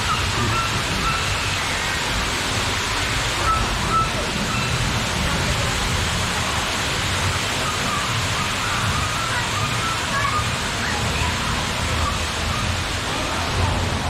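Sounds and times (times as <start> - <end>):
high whistling calls: 0.0 - 2.0, 7.3 - 11.0
falling water and rain: 0.0 - 14.0.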